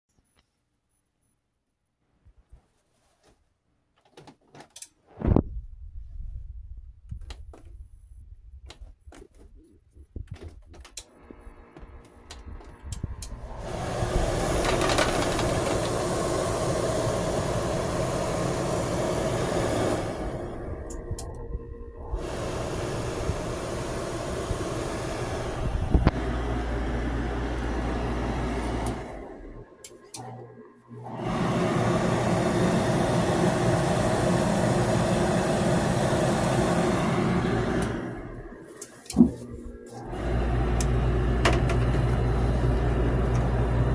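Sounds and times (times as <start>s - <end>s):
clothes dryer whirring: 10.8s - 43.9s.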